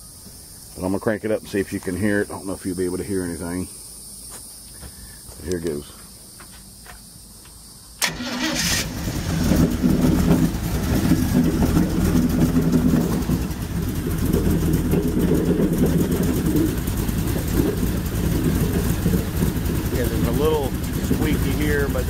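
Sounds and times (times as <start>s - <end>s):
airboat engine idling: 8.0s - 22.0s.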